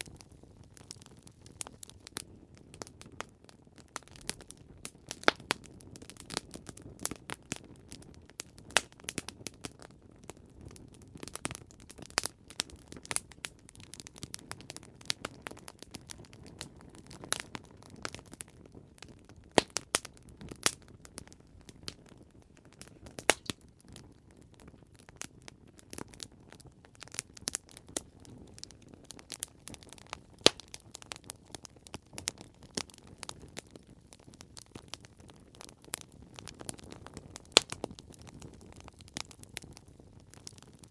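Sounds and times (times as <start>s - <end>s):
low hiss of burning: 0.0s - 40.9s
wood fire crackling: 0.0s - 40.9s
sharp pops and snaps: 19.1s - 20.8s, 22.6s - 23.6s, 27.1s - 31.2s, 36.6s - 39.4s.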